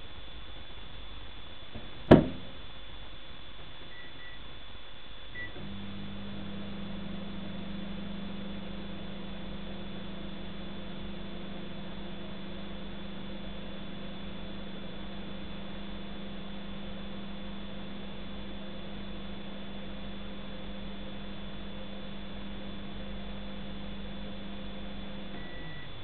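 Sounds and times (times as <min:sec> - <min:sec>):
microwave door clunk: 0:02.1 - 0:02.5
keypad beeps: 0:03.9 - 0:04.4
microwave humming: 0:05.3 - 0:26.0.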